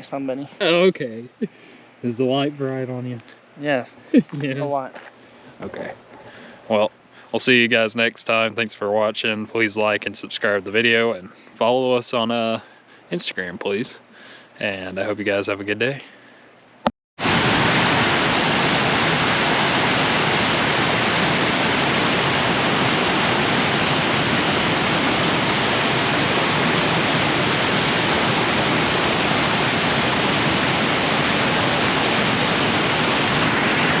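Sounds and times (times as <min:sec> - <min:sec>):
steady rushing noise: 0:17.2 - 0:34.0.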